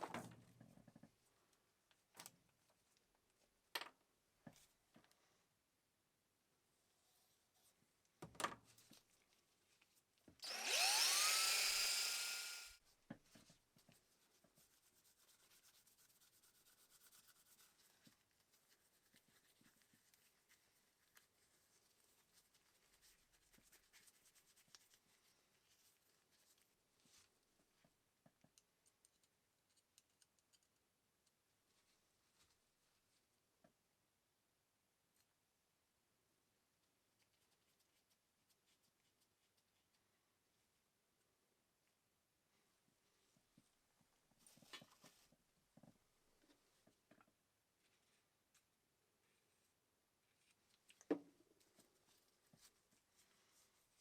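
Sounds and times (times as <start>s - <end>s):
small electric motor whining: 10.4s - 12.8s.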